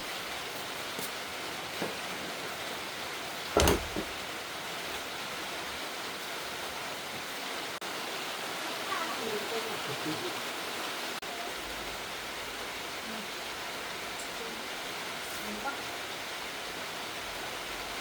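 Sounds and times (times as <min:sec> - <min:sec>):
rushing falling water: 0:00.0 - 0:18.0
short loud knock: 0:03.6 - 0:04.1.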